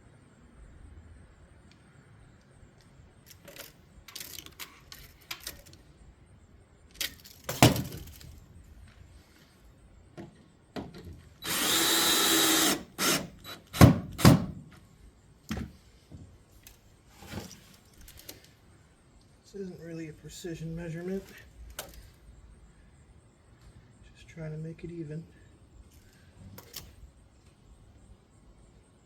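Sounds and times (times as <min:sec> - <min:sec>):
power drill burst: 0:11.4 - 0:14.6.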